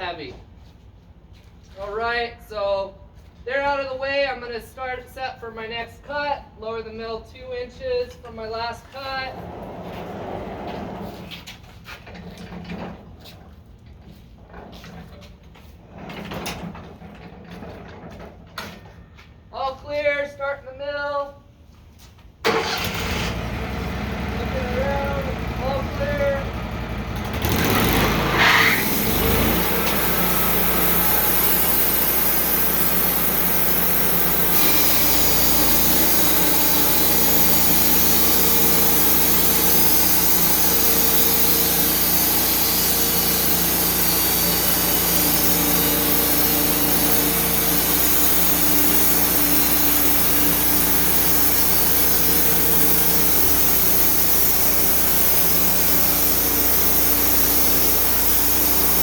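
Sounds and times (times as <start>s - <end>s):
sawmill sawing log: 22.5s - 59.0s.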